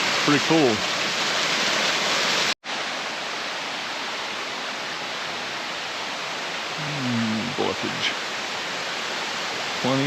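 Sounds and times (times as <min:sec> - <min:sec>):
waterfall pouring: 0:00.0 - 0:02.6.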